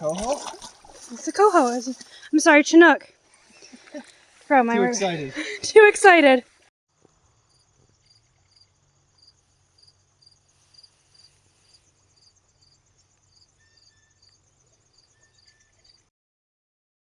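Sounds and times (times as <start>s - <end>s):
faint crickets chirping: 0.0s - 2.7s, 6.9s - 16.1s.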